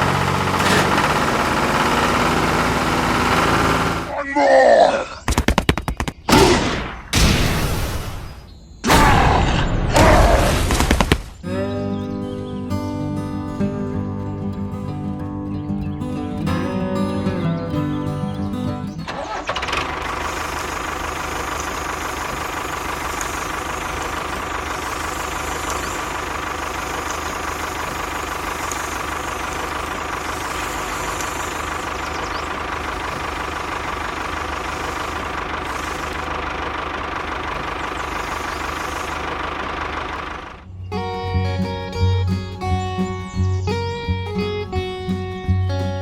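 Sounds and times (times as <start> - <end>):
small electric motor whining: 20.2 - 39.5.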